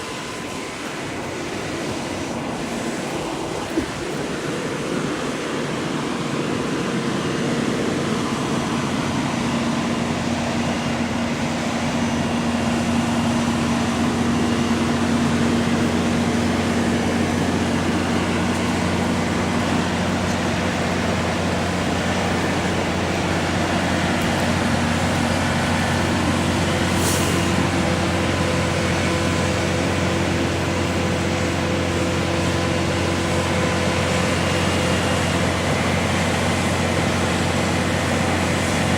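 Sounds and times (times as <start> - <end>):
concrete pump engine running: 0.0 - 38.9
shifting steady tones: 0.0 - 38.9
brief hiss: 26.8 - 27.8.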